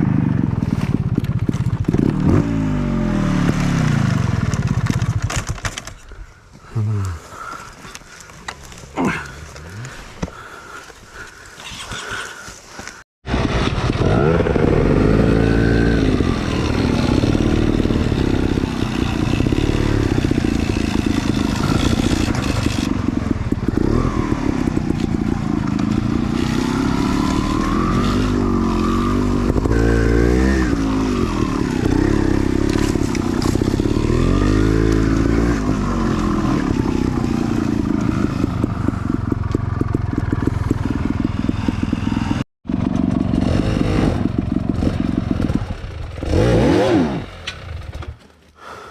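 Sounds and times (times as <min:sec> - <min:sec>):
dirt bike engine revving: 0:00.0 - 0:05.1, 0:13.3 - 0:48.2
bike clattering and scraping: 0:00.5 - 0:06.4, 0:15.6 - 0:48.6.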